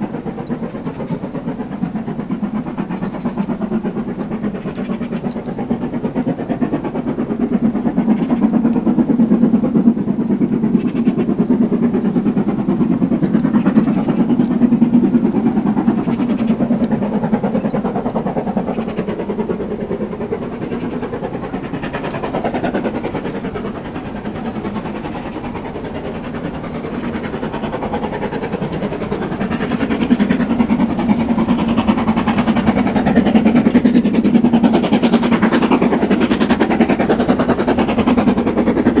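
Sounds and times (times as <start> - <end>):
carriages rolling on track: 0.0 - 39.0
steam train passing: 0.0 - 39.0.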